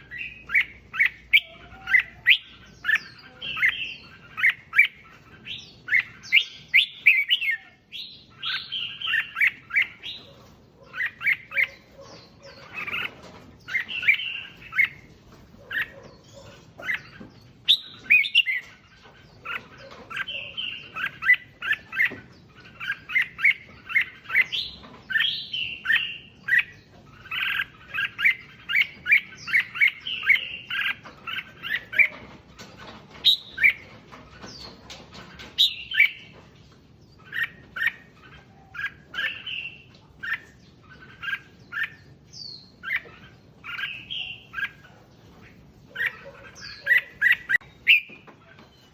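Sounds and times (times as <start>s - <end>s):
bird singing chirping phrases: 0.0s - 48.9s.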